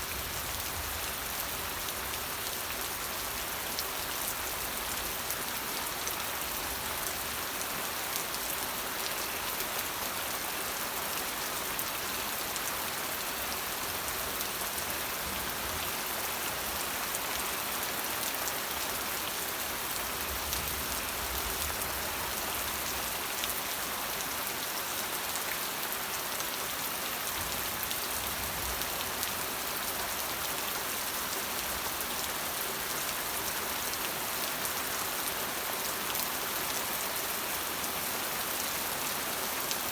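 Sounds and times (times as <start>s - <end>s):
rain falling on hard surface: 0.0s - 39.9s.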